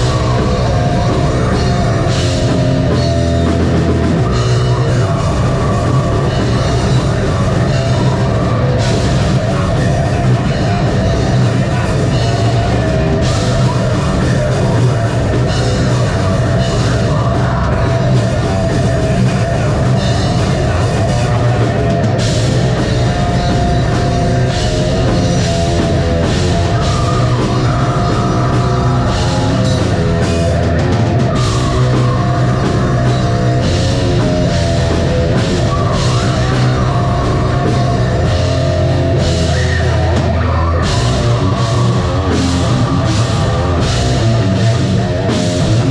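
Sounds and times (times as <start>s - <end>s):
heavy metal band playing: 0.0s - 45.9s.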